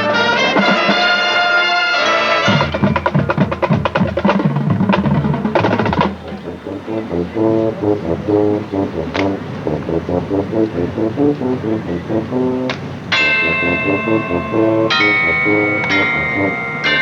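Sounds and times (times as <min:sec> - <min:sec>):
brass chord: 0:00.0 - 0:03.8, 0:05.6 - 0:17.0
snare and bass drums: 0:02.5 - 0:08.0
short pitched notes: 0:05.5 - 0:17.0.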